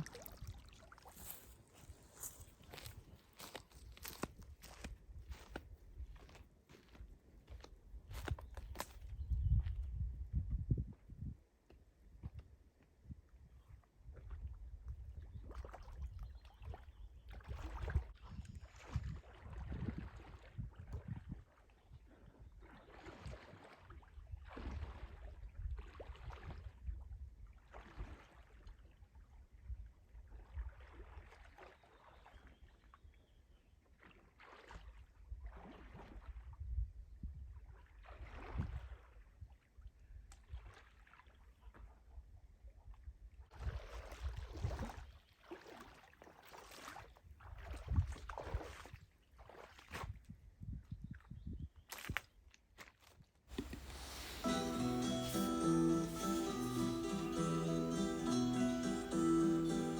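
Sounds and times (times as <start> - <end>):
oars splashing in water: 0.0 - 4.3, 53.5 - 58.7
wind rumble on microphone: 8.0 - 11.4, 12.1 - 22.6, 36.2 - 39.0, 47.6 - 49.0, 49.9 - 51.8.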